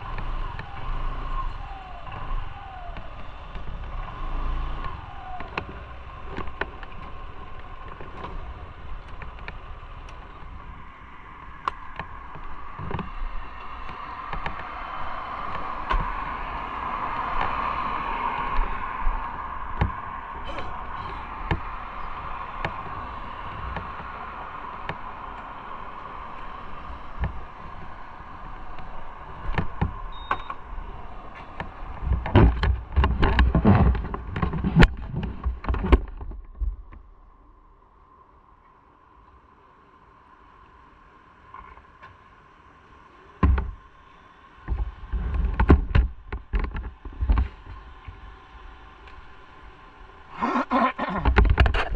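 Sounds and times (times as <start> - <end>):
motorcycle engine humming: 0.0 - 38.0
loud knocks and clunks: 32.2 - 36.9.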